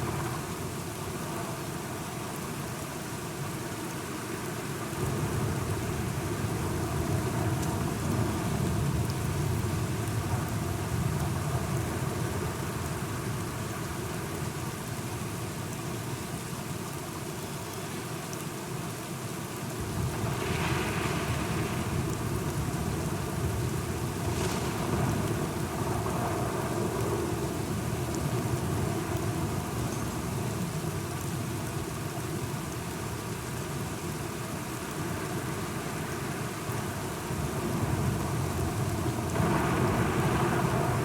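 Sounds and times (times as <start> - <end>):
steady rain: 0.0 - 41.0
low rumbling thunder: 37.5 - 41.0.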